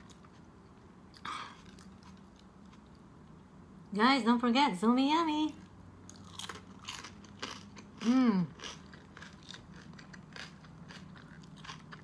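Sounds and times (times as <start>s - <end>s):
chewing crunchy pork: 1.1s - 3.0s, 6.0s - 12.0s
person humming: 8.1s - 8.5s.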